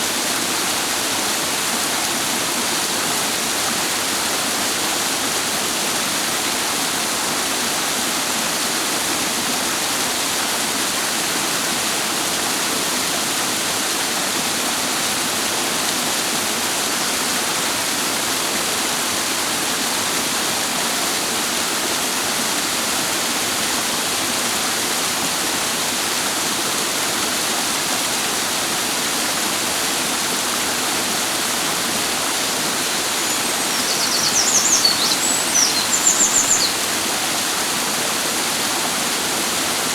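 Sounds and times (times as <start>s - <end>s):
water rushing over rocks: 0.1s - 39.9s
bird trilling: 33.2s - 36.9s.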